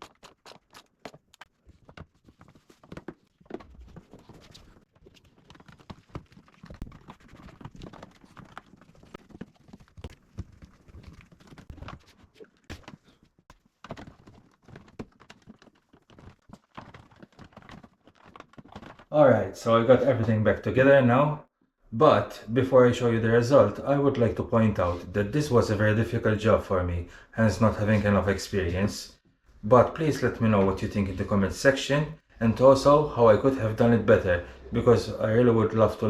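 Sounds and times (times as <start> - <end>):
car parts clicking and knocking: 12.6 - 19.1.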